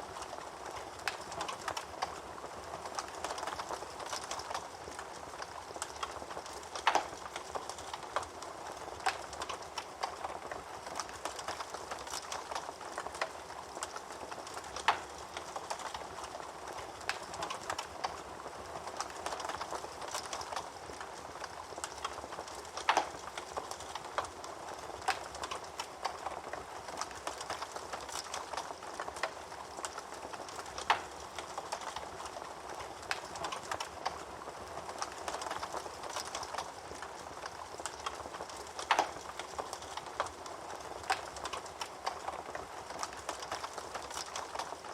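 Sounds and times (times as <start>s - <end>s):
fire crackling and snapping: 0.0s - 44.9s.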